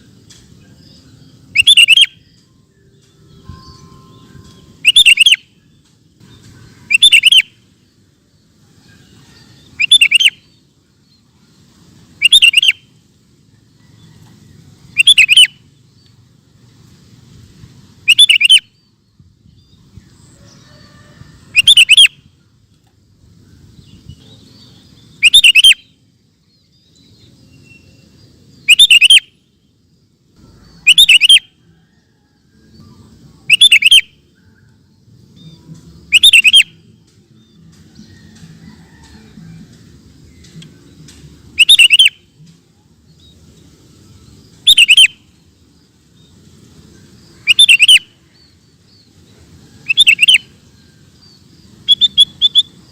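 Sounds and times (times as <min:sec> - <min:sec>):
bird singing short phrases: 0:00.6 - 0:05.4, 0:12.2 - 0:12.8, 0:23.8 - 0:25.9, 0:26.8 - 0:29.3, 0:35.4 - 0:37.0, 0:40.4 - 0:42.3, 0:44.5 - 0:45.2, 0:51.7 - 0:52.8.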